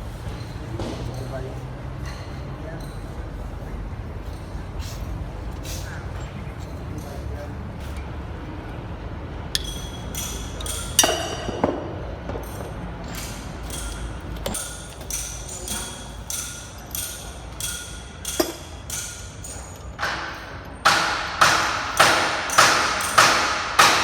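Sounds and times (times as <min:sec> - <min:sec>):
hammer striking metal: 0:09.6 - 0:24.0.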